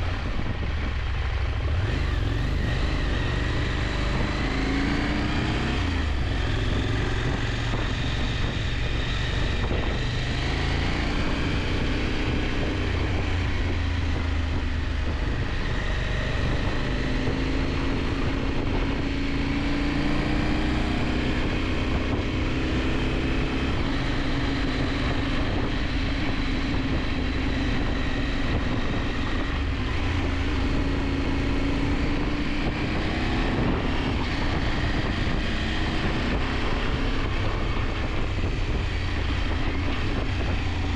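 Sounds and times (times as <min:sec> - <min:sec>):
motorcycle engine running: 0:00.0 - 0:40.9
wind rush on microphone: 0:00.0 - 0:40.9.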